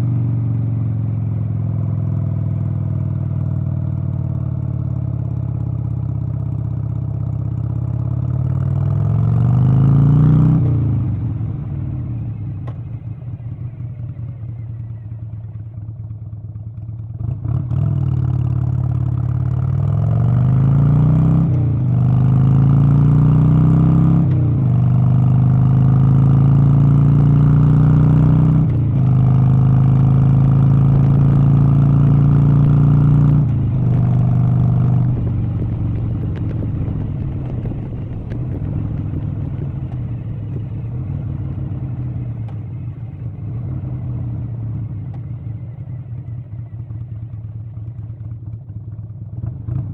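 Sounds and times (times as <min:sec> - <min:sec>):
vehicle engine accelerating: 0:08.3 - 0:15.5, 0:17.2 - 0:49.9.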